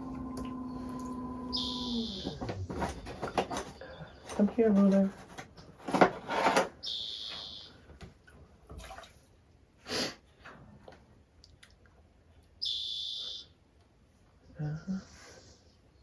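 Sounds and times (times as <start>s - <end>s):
tools rustling and knocking: 2.2s - 6.8s.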